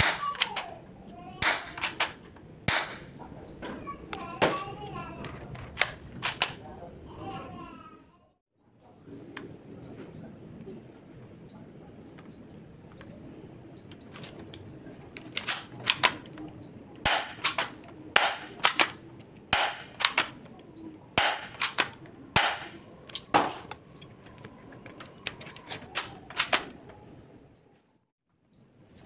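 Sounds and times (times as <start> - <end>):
airsoft guns firing: 0.0 - 0.7, 1.4 - 3.1, 17.0 - 20.5, 21.2 - 23.8, 25.9 - 26.8
airsoft gun reloading clicks: 0.1 - 0.7, 1.4 - 3.1, 5.5 - 6.6, 14.0 - 16.4, 17.0 - 20.6, 21.2 - 26.8.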